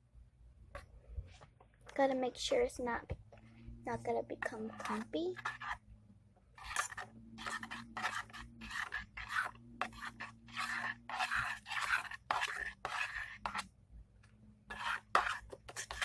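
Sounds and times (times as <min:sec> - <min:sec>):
spoon stirring slime in a bowl: 0:00.7 - 0:05.9, 0:06.5 - 0:16.0.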